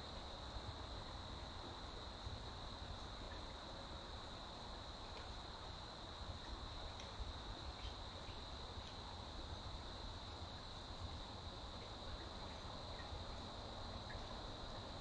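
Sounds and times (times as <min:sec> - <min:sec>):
insects chirping: 0:00.0 - 0:15.0
faint ticks: 0:04.2 - 0:10.8, 0:11.7 - 0:14.9.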